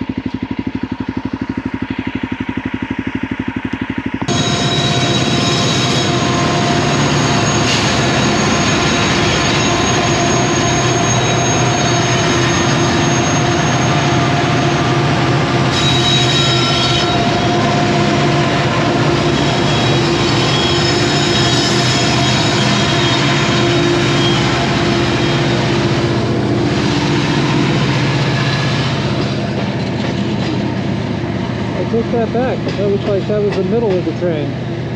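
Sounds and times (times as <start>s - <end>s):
freight train wheels rumbling on rail: 0.0s - 34.9s
high wheel squeal: 4.3s - 34.6s.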